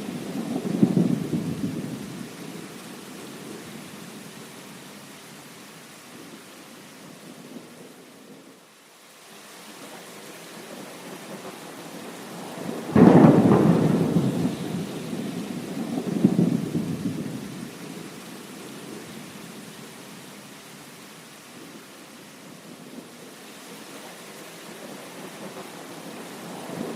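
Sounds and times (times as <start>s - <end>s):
heavy rain: 0.0s - 26.9s
thunder clap rolling: 12.8s - 17.4s.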